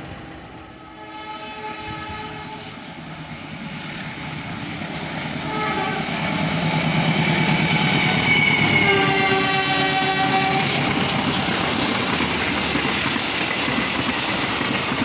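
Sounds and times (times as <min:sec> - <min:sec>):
train wheels rumbling on rails: 0:00.0 - 0:15.0
train horn: 0:00.6 - 0:03.0, 0:05.4 - 0:06.2, 0:08.1 - 0:10.9.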